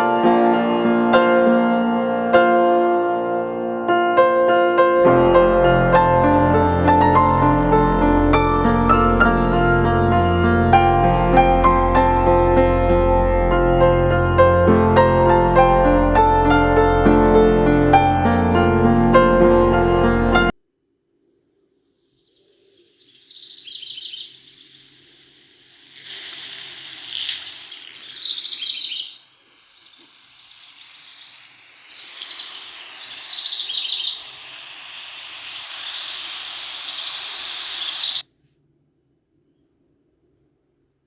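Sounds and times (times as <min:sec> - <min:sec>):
small birds chirping: 0:21.9 - 0:38.2.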